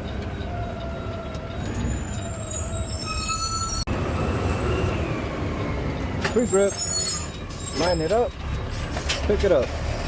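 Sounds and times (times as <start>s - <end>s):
high thin squeals: 1.8s - 3.9s, 6.4s - 9.0s.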